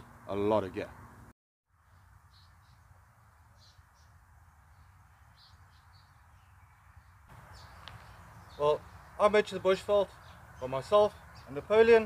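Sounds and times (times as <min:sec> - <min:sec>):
faint high bird chirps: 0:03.5 - 0:09.1.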